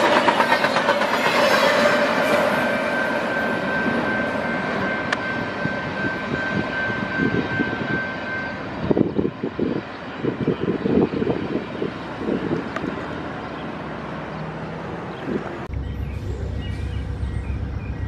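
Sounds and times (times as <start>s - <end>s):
high-pitched wheel squeal: 0.0s - 9.2s
train cars rolling past: 0.0s - 9.3s, 11.3s - 18.0s.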